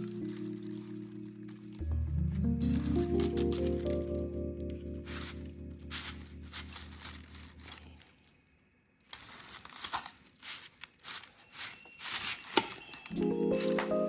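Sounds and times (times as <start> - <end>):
background music: 0.0 - 7.8, 13.1 - 14.0
crinkling and rustling: 0.0 - 14.0.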